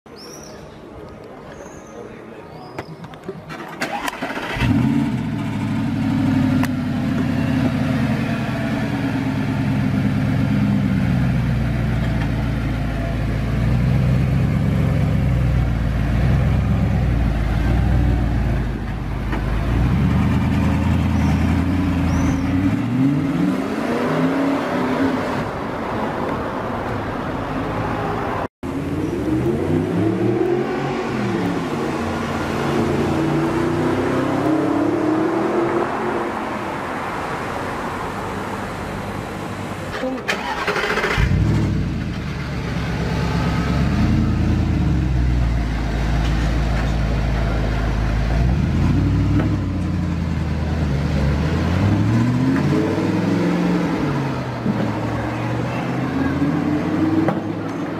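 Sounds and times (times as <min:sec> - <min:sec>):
car engine revving and accelerating: 0:04.2 - 0:11.2, 0:19.6 - 0:25.5, 0:28.7 - 0:36.7, 0:40.7 - 0:46.2, 0:47.6 - 0:57.9.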